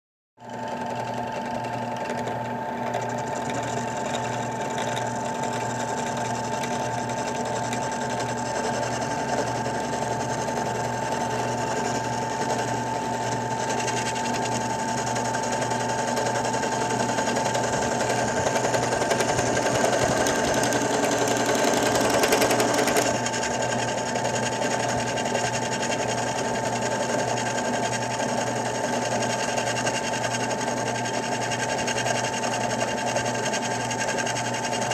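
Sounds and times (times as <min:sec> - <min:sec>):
drill press motor running: 0:00.4 - 0:34.9
harsh metal cutting noise: 0:15.6 - 0:25.6.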